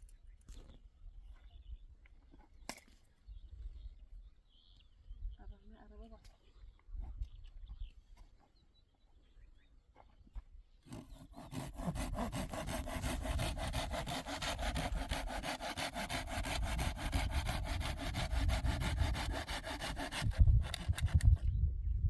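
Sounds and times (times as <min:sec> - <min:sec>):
saw cutting wood: 0:10.8 - 0:21.5.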